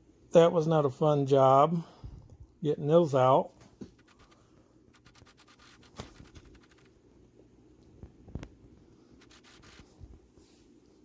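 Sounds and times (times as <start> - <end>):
faint scraping and clicking: 3.7 - 7.0, 7.8 - 11.0.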